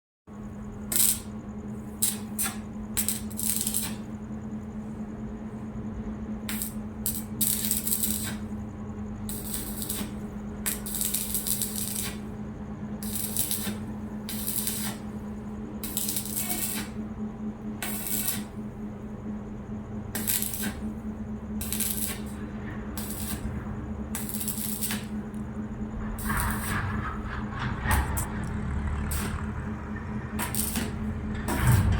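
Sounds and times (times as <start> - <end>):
welding machine humming: 0.4 - 31.9
welding arc crackling: 0.8 - 4.1, 6.5 - 8.6, 9.2 - 12.3, 13.0 - 15.2, 15.8 - 17.1, 17.8 - 18.6, 20.1 - 31.9.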